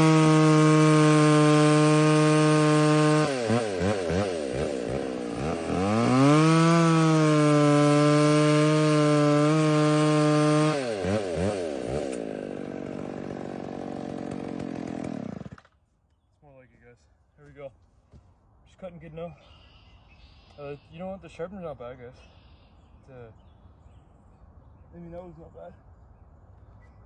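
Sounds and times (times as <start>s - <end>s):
chainsaw cutting at high revs: 0.0s - 15.8s.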